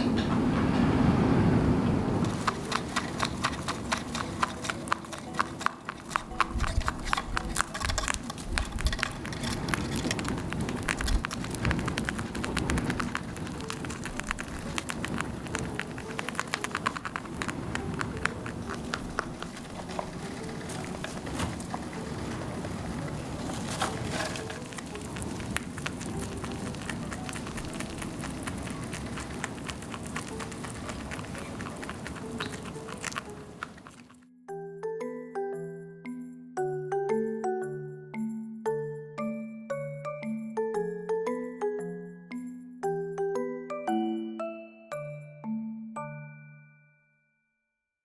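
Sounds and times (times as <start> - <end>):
low rumble of wind: 0.0 - 34.1
rain pattering: 0.0 - 34.1.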